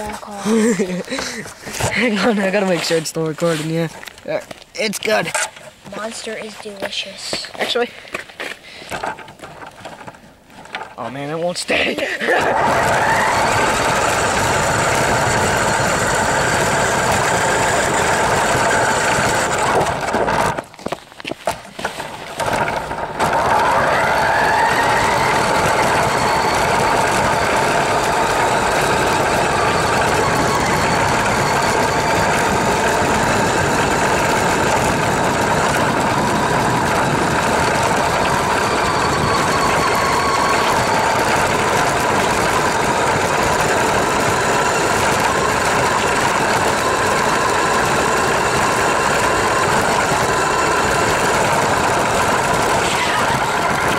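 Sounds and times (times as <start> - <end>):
radio-controlled car motor whining: 12.3 - 20.6, 22.4 - 53.9.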